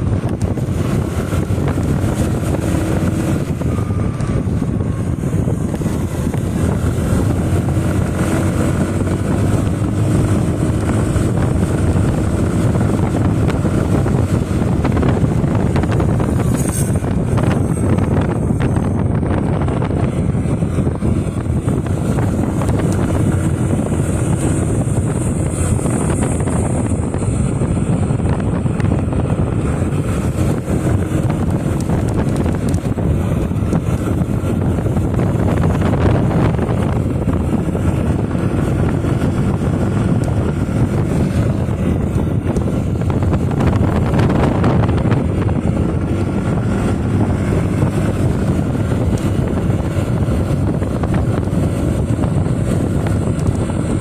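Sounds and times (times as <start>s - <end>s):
faint motorcycle engine hum: 0.0s - 54.0s
wind buffeting microphone: 0.0s - 54.0s.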